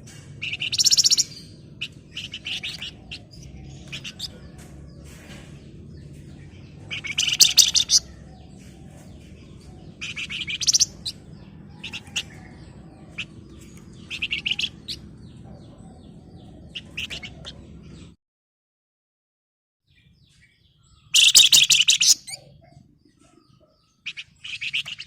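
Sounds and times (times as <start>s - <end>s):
bird chirps: 0.0s - 18.2s, 19.9s - 25.0s
buzzy bird trilling: 0.4s - 4.4s, 6.7s - 9.0s, 9.8s - 15.1s, 21.1s - 22.4s.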